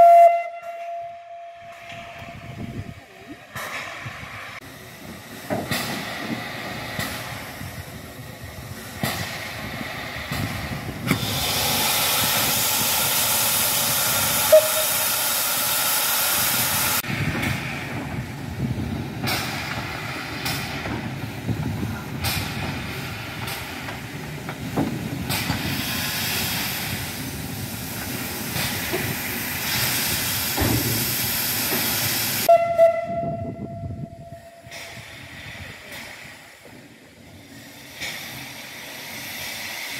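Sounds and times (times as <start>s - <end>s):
steam locomotive hissing: 1.6s - 39.9s.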